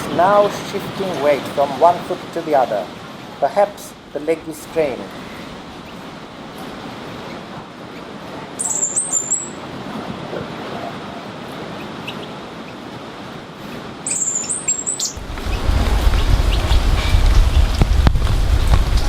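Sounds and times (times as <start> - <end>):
high thin bird call: 8.6 - 9.6, 14.0 - 15.2
loud low rushing rumble: 15.2 - 19.0
steady rushing background: 15.2 - 19.0.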